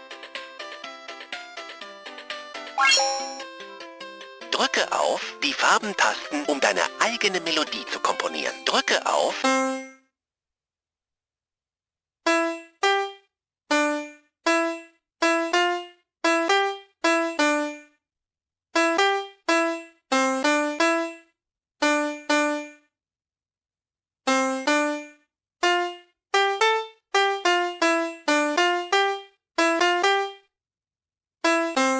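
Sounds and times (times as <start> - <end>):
electronic toy piano beeping tones: 2.8 - 3.4.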